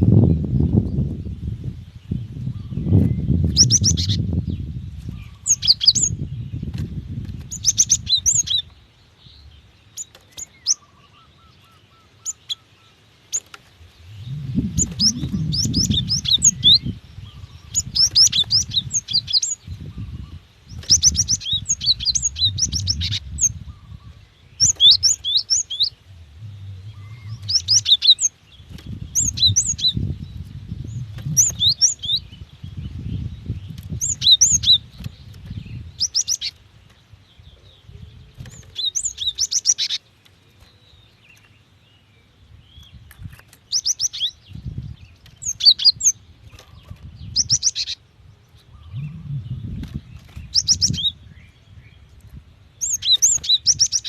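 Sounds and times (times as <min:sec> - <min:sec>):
low background rumble: 0:13.7 - 0:36.1, 0:48.3 - 0:52.5.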